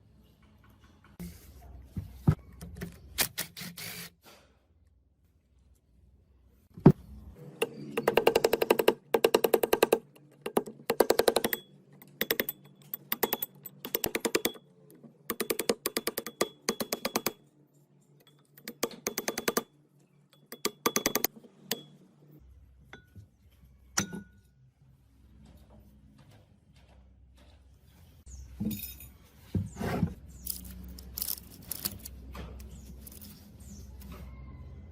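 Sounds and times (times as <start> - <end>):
rapid mechanical clicking: 18.6 - 19.7, 20.4 - 21.9.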